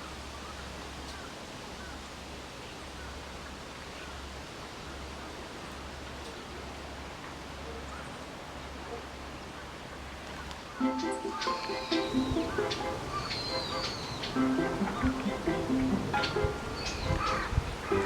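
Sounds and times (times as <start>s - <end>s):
faint bird chirps: 10.8s - 15.2s.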